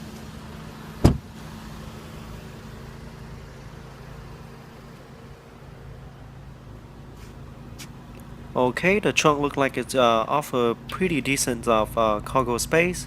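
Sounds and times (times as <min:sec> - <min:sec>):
car engine idling: 0:00.0 - 0:13.0
sharp clunk: 0:01.0 - 0:01.3.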